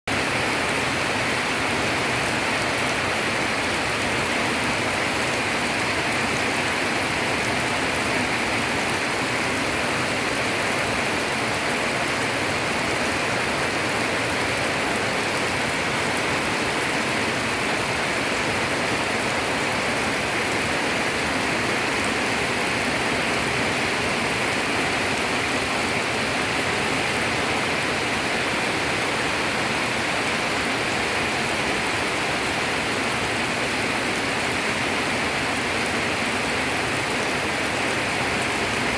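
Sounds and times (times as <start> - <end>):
rain falling: 0.1 - 38.9.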